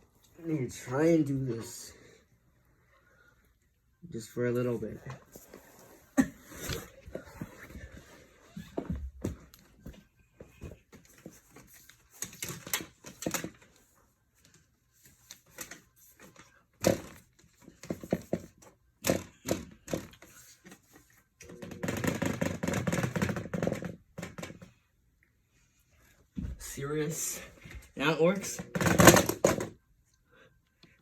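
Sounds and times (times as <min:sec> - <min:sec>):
plastic knocking and clattering: 0:16.8 - 0:20.4, 0:21.5 - 0:24.8, 0:28.6 - 0:29.8.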